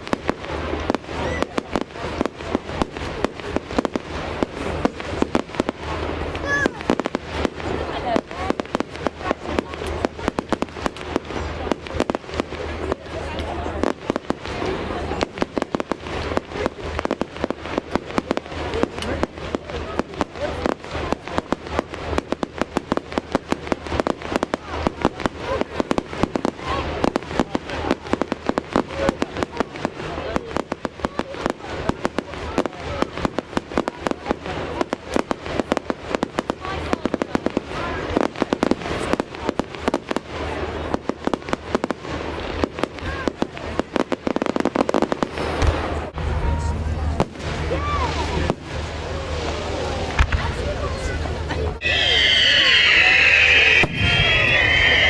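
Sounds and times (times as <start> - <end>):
fireworks cracks and bangs: 0.0 - 55.0
steady low rumble: 53.2 - 55.0.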